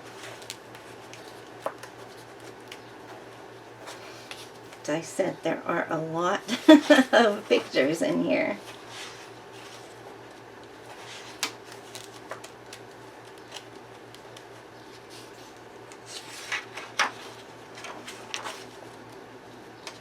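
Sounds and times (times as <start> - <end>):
paper crackling: 0.0 - 4.8, 8.6 - 20.0
paper pages turning: 0.0 - 4.8, 8.6 - 19.2.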